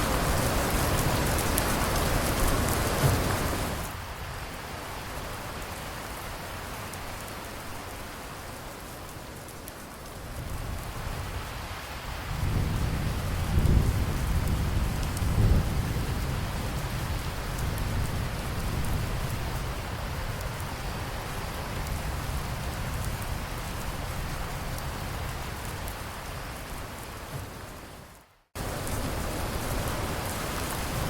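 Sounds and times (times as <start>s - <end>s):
steady rain: 0.0s - 31.0s
low roll of thunder: 12.1s - 25.3s.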